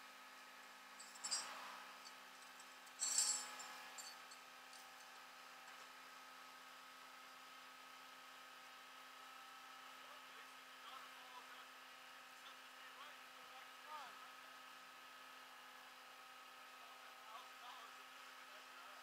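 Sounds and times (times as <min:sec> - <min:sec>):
metallic clinks: 0:01.0 - 0:05.1.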